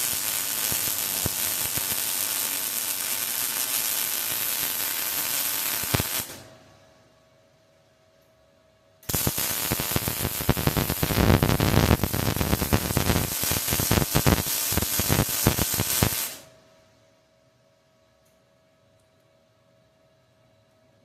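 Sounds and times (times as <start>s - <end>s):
welding arc crackling: 0.0s - 6.4s, 9.1s - 16.5s.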